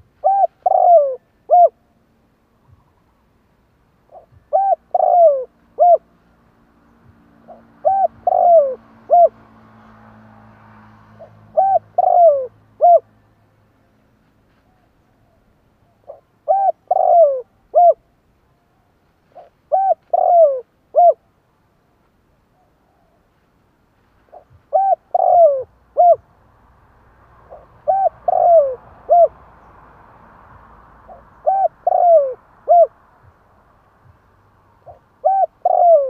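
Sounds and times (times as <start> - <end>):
dove cooing: 0.0 - 1.8, 4.1 - 6.1, 7.4 - 9.4, 11.2 - 13.1, 15.8 - 18.0, 19.3 - 21.2, 24.3 - 26.2, 27.5 - 29.4, 31.1 - 33.0, 34.8 - 36.0.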